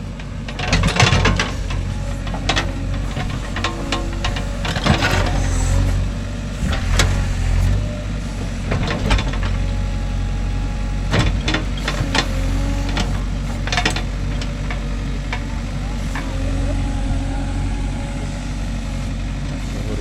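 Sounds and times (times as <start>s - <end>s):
diesel engine running: 0.0s - 20.0s
metallic clanks and knocks: 0.5s - 7.8s, 11.1s - 16.5s.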